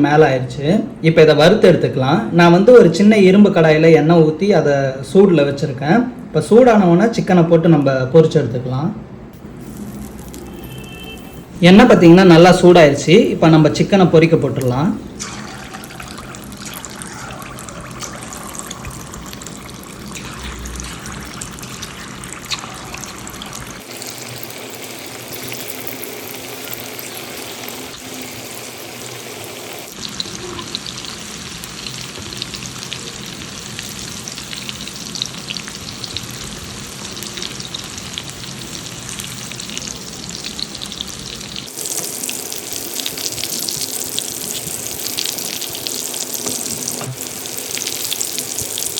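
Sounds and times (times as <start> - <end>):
chicken deep-frying in oil: 9.5 - 11.4, 15.2 - 48.9.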